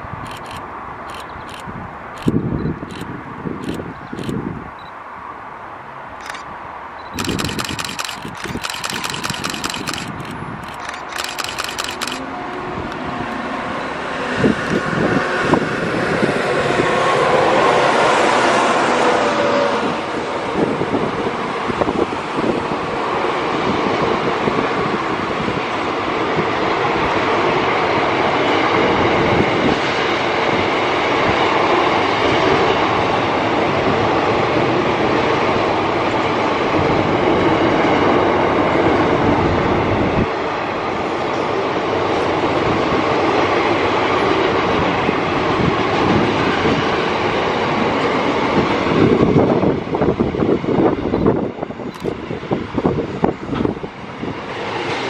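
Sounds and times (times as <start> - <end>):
freight train wheels clacking: 7.1 - 13.0.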